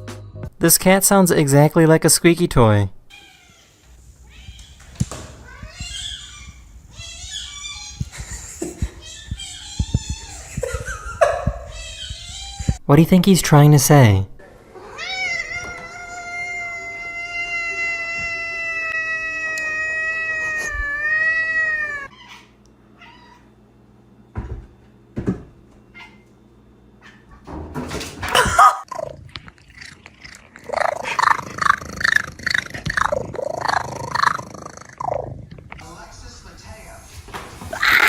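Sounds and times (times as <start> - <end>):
cat yowling: 5.4 - 8.2, 11.6 - 12.8, 14.8 - 23.5, 28.4 - 35.1, 37.7 - 38.0.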